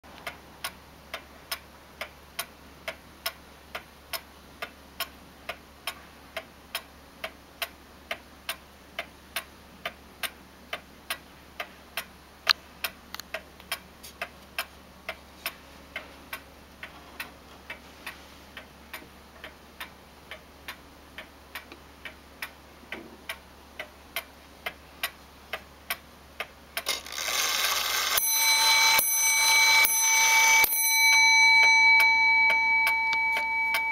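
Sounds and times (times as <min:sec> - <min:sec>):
clock ticking: 0:00.1 - 0:33.9
clock mechanism whir: 0:23.8 - 0:33.9
clock chime strike: 0:27.2 - 0:33.9.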